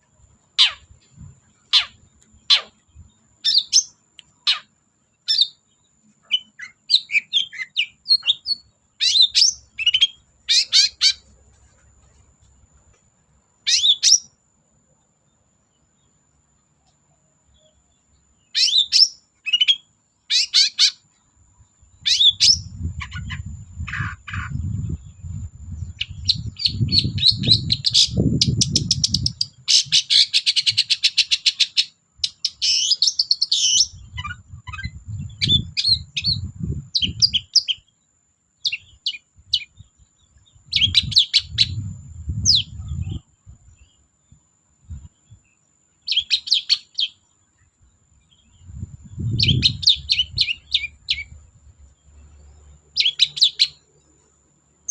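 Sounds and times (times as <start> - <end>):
bird chattering and trilling: 0.6 - 11.8, 13.6 - 14.3, 17.6 - 21.1, 21.9 - 38.0, 38.6 - 44.0, 46.0 - 47.2, 48.3 - 51.4, 52.0 - 53.9.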